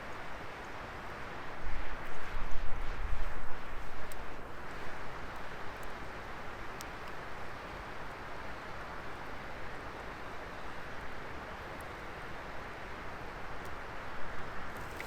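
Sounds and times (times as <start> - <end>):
wood fire hissing and crackling: 14.6 - 15.0.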